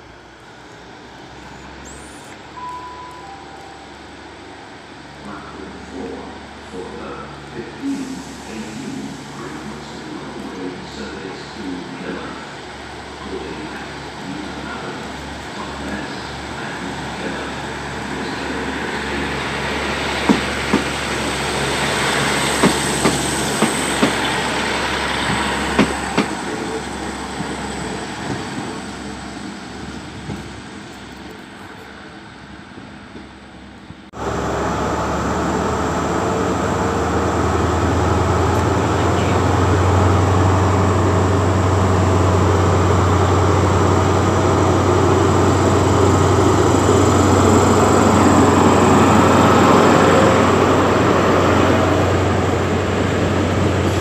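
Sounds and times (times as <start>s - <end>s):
diesel train passing: 0.0s - 54.0s
train wheels clicking on rail joints: 18.8s - 28.8s
diesel engine low hum: 33.6s - 54.0s.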